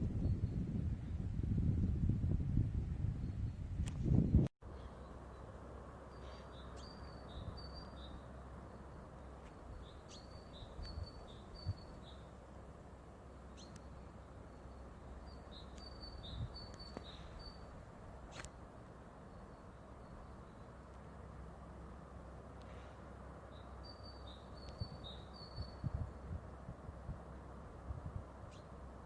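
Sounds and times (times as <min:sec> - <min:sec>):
songbird chirping: 0:04.3 - 0:26.1, 0:28.4 - 0:28.9
low background hiss: 0:04.7 - 0:29.0.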